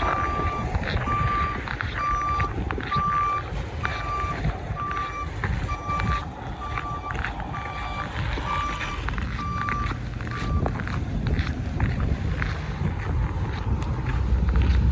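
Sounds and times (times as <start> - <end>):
vehicle backup alarm beeping: 0.0 - 11.3
low rumble: 0.0 - 14.9.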